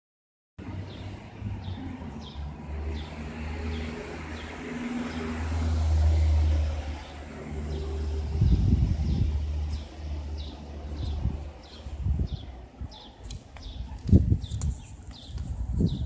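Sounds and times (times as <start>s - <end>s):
vehicle engine rumbling: 0.6s - 12.7s.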